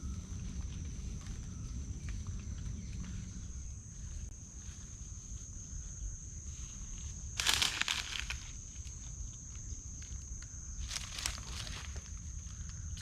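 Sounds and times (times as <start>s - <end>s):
low rumble: 0.0s - 5.3s
high-pitched insect drone: 0.0s - 13.0s.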